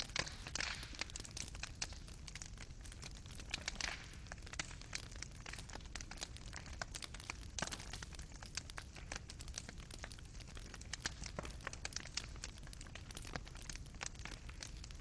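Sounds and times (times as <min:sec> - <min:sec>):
fireplace fire crackling: 0:00.0 - 0:15.0.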